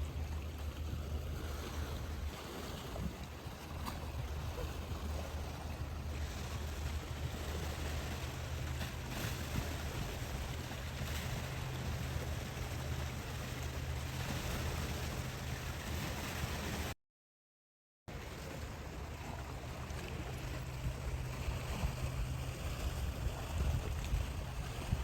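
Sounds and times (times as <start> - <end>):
waves washing against rocks: 0.0 - 16.9
wind: 0.0 - 17.0, 18.1 - 25.0.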